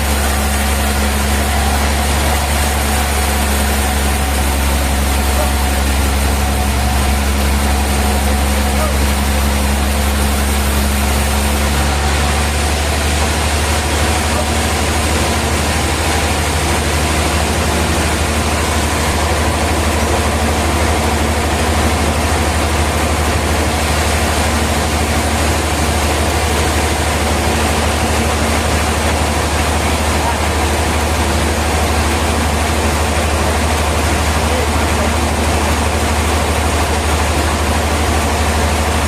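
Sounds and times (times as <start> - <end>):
sawmill machinery running: 0.0 - 39.0.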